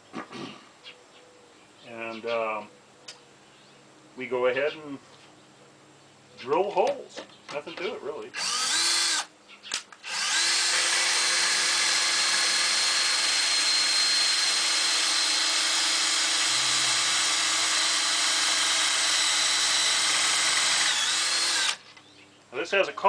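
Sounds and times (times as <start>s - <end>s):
power drill boring into wood: 8.4s - 9.3s, 10.0s - 21.8s.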